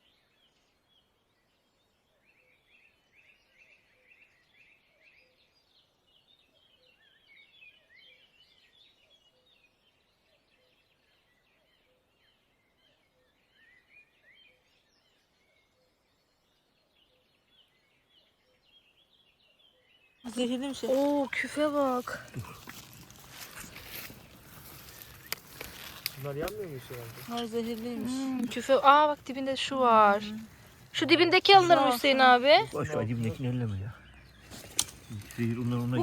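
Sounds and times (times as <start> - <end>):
birds chirping and trilling: 12.4 - 36.0.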